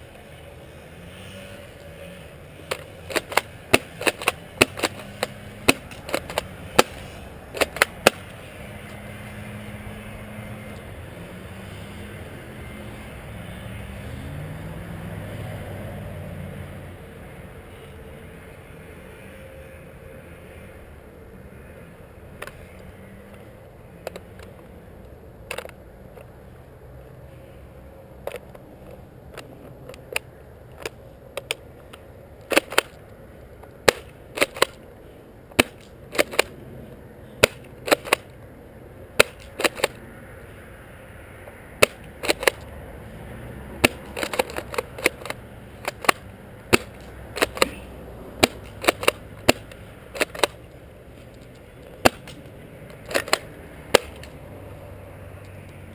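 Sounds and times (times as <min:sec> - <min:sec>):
airsoft shotgun pops and clacks: 0:02.7 - 0:08.3, 0:32.5 - 0:33.0, 0:33.8 - 0:34.8, 0:35.6 - 0:36.5, 0:37.4 - 0:38.3, 0:39.2 - 0:40.0, 0:41.8 - 0:42.6, 0:43.8 - 0:47.8, 0:48.4 - 0:50.6, 0:52.0 - 0:52.4, 0:53.0 - 0:54.3.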